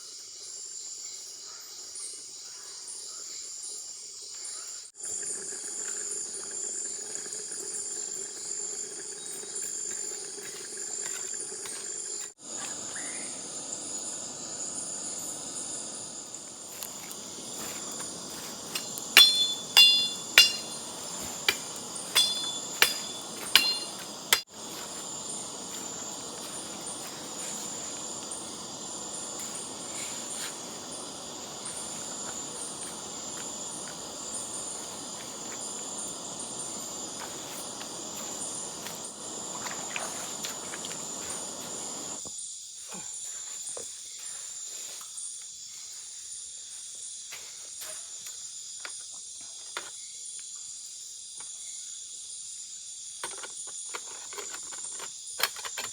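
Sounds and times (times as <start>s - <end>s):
forest insects chorus: 0.0s - 55.9s
sharp metallic knocks: 17.6s - 24.9s.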